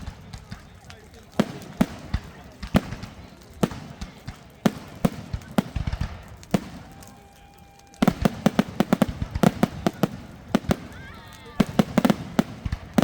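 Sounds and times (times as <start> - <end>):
fireworks banging: 0.0 - 13.0.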